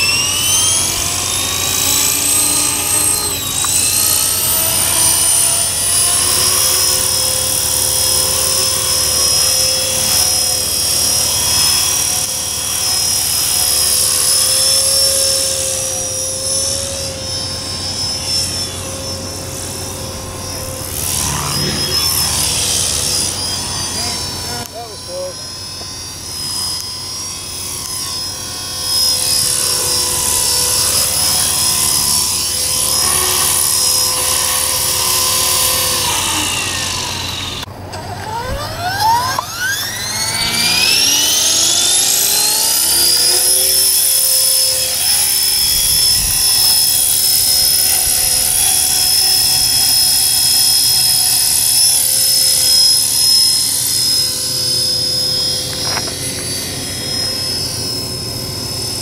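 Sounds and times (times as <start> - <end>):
rc helicopter rotor whining: 0.0 - 59.0
wind buffeting microphone: 45.6 - 48.6.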